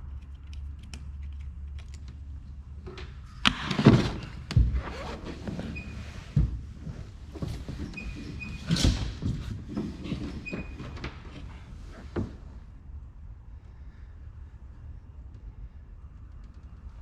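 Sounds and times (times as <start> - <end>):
clunks and knocks: 2.9 - 12.6.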